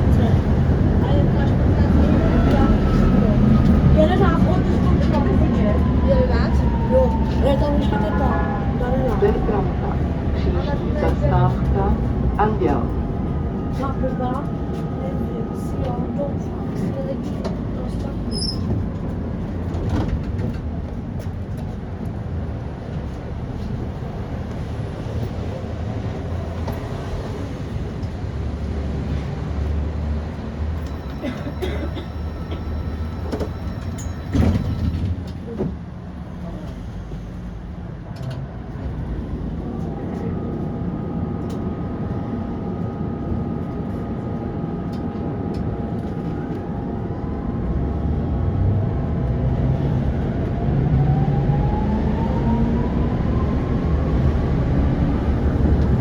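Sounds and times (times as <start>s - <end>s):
tram wheels rumbling on rails: 0.0s - 56.0s.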